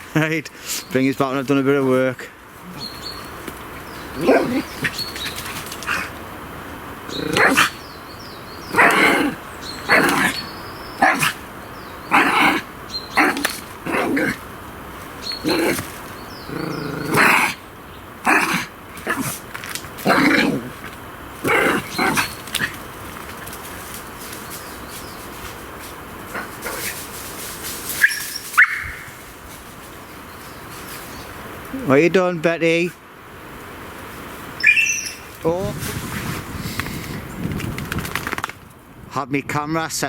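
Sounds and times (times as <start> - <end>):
dog barking excitedly: 4.0 - 6.2, 7.1 - 7.9, 8.6 - 14.5, 15.2 - 17.6, 18.2 - 23.2, 26.3 - 27.0, 28.0 - 29.2.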